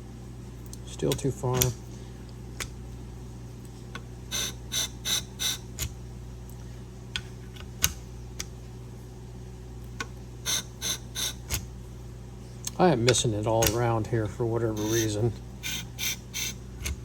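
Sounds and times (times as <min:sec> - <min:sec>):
sharpening machine motor humming: 0:04.3 - 0:05.9, 0:10.4 - 0:11.6, 0:14.7 - 0:17.0
blade scraping grinding wheel: 0:14.8 - 0:16.6.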